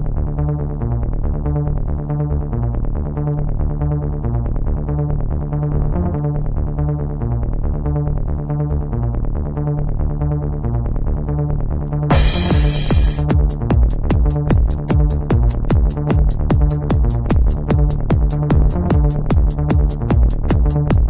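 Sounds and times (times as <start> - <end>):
electronic trance music: 12.1 - 21.0.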